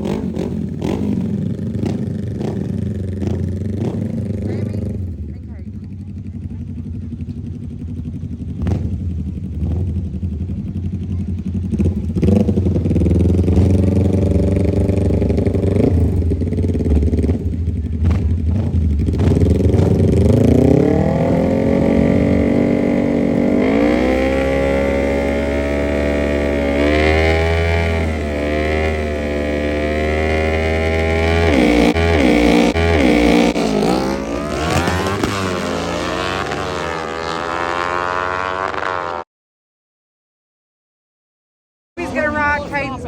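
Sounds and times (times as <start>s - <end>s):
mini bike engine revving: 0.0s - 5.2s, 11.0s - 39.2s.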